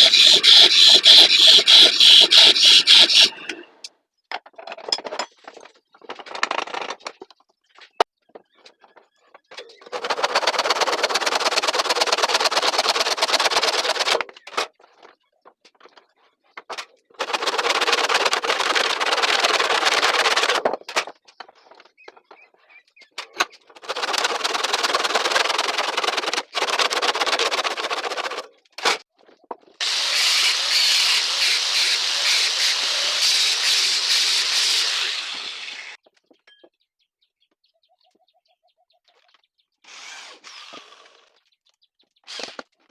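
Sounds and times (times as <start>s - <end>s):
hand tool scraping spinning wood: 0.0s - 3.6s, 9.8s - 14.2s, 17.2s - 20.7s, 23.8s - 28.5s, 29.8s - 36.0s.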